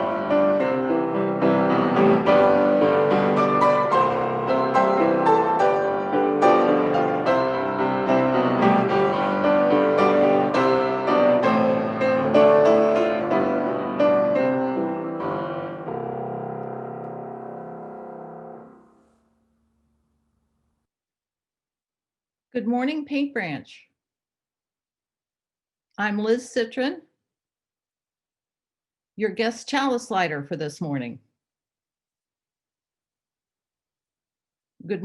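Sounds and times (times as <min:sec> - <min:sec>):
piano playing chords and melody: 0:00.0 - 0:19.4.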